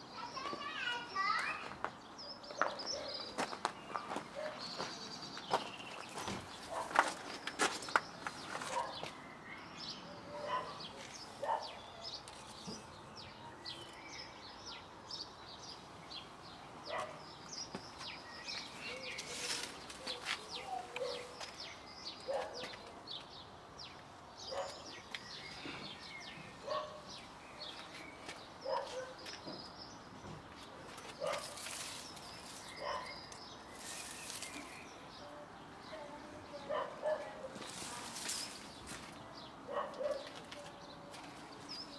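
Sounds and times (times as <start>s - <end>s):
small birds chirping: 0.0s - 41.9s
rustling among plants: 2.6s - 14.8s, 16.1s - 23.4s, 30.4s - 41.9s.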